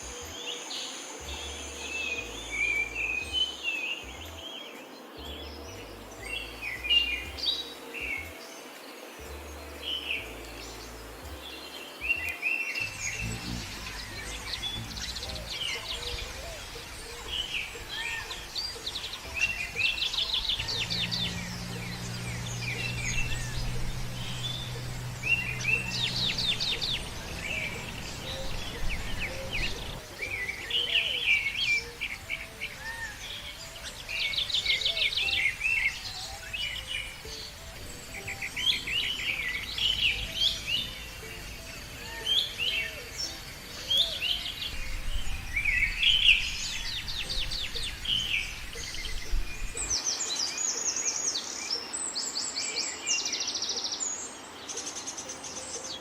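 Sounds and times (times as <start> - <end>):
birds chirping and trilling: 0.0 - 56.0
low steady hum: 20.2 - 30.0.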